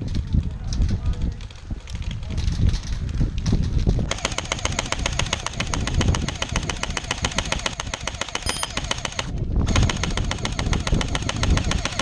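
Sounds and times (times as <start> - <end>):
airsoft gun rapid firing: 4.1 - 12.0.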